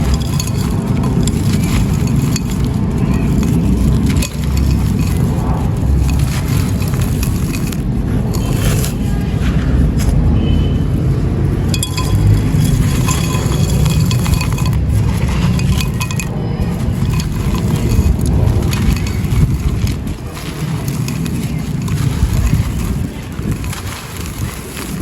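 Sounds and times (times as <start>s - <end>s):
clay pots and sand crunching: 0.0s - 25.0s
small sharp clinks: 11.7s - 25.0s.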